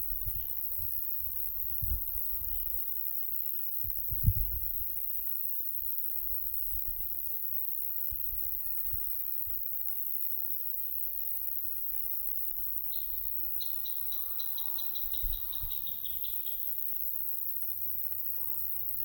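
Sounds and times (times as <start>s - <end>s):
wind rumbling on microphone: 0.0s - 2.7s, 3.8s - 5.0s, 15.0s - 16.0s
small bird trilling: 13.0s - 16.6s.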